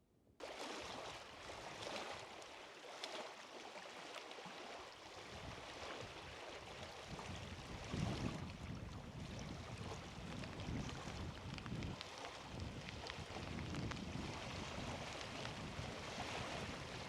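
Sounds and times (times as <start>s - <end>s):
rushing water: 0.4s - 17.0s
wind: 0.4s - 17.0s
wind buffeting microphone: 5.2s - 17.0s.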